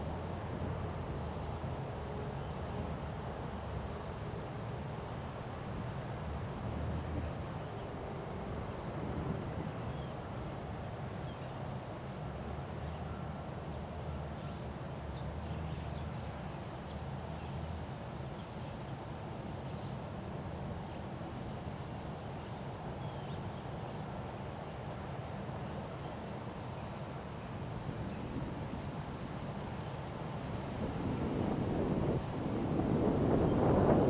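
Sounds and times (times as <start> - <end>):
wind buffeting microphone: 27.9 - 34.0.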